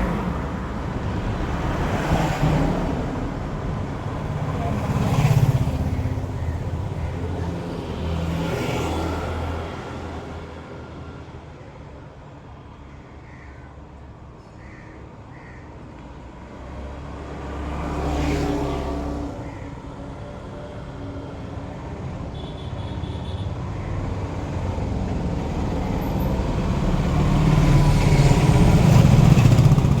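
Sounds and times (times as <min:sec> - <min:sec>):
vehicle passing: 0:00.0 - 0:10.4
road traffic: 0:00.0 - 0:30.0.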